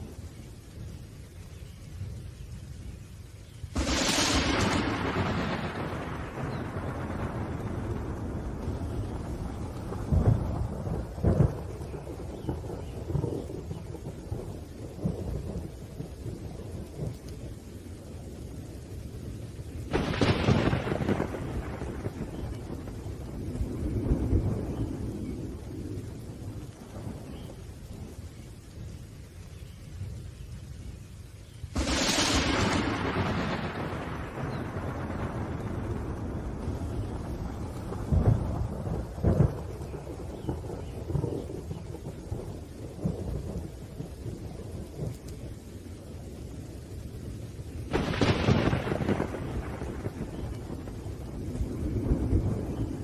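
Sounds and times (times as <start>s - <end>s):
low thunder rumble: 0.0s - 53.0s
steady rain: 0.0s - 53.0s
thunder crack: 3.8s - 14.3s, 19.9s - 25.3s, 31.8s - 45.2s, 47.9s - 53.0s.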